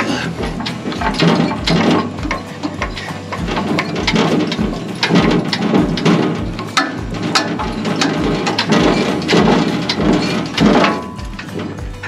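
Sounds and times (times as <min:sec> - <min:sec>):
winch ratchet clicking: 0:00.0 - 0:12.0.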